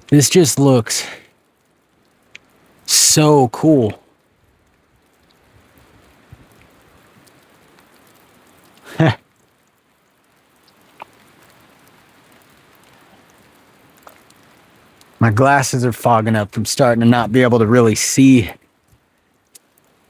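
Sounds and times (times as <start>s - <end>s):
steady rain falling: 0.0s - 20.0s
person grunting: 8.9s - 9.2s.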